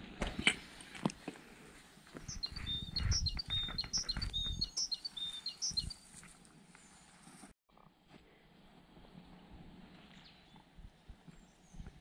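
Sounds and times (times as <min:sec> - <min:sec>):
small songbird chirping: 0:02.1 - 0:07.1.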